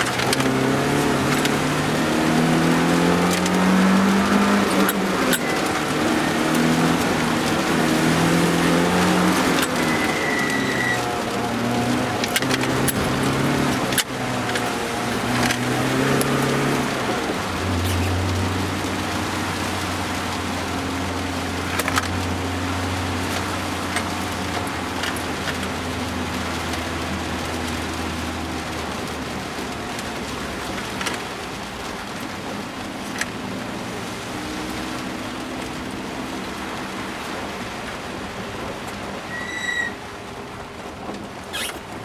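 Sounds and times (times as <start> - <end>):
car engine running: 0.0 - 33.6
tyre noise on wet road: 0.0 - 42.0.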